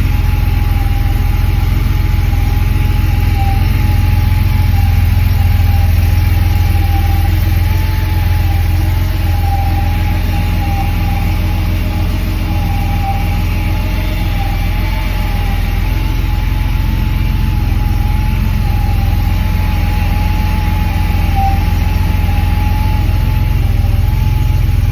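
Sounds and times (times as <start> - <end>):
car engine idling: 0.0 - 24.9.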